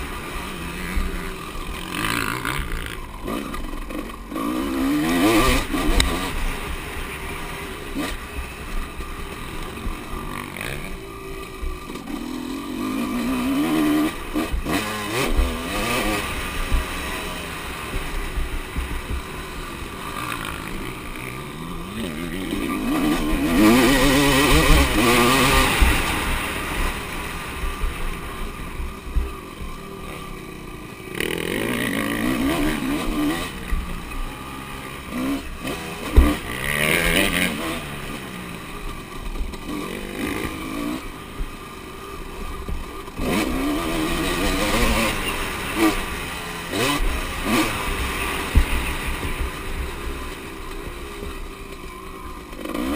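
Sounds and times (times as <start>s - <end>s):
motocross bikes revving and passing: 0.0s - 52.9s.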